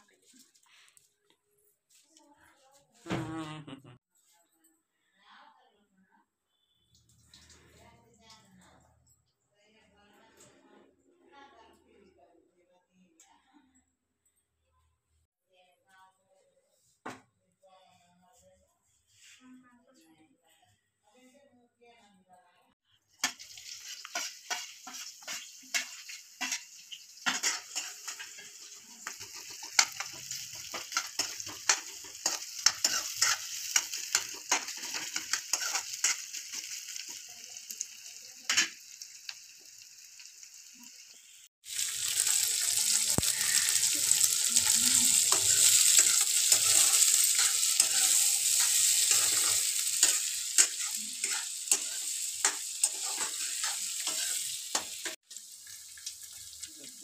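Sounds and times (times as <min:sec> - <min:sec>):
onion sizzling in hot oil: 0:23.0 - 0:57.0
peas frying: 0:23.1 - 0:57.0
steel spoon scraping pan: 0:23.2 - 0:37.2, 0:42.9 - 0:55.2.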